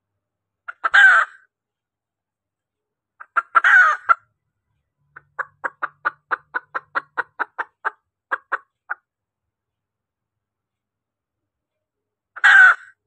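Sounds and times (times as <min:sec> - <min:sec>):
hen clucking: 0:00.7 - 0:01.4, 0:03.2 - 0:04.3, 0:05.1 - 0:09.1, 0:12.4 - 0:13.0
hen squawk: 0:00.7 - 0:01.5, 0:03.2 - 0:04.2, 0:12.4 - 0:13.0.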